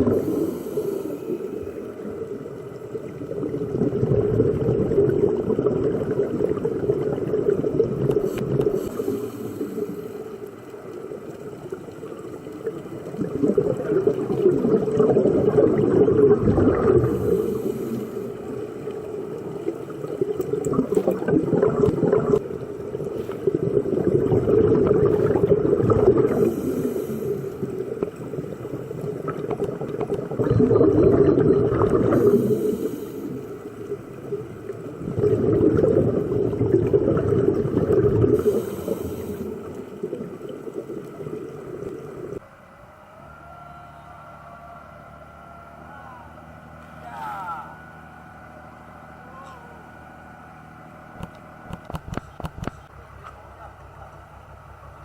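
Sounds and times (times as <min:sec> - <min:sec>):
diver breathing underwater bubbles: 0:00.0 - 0:42.4.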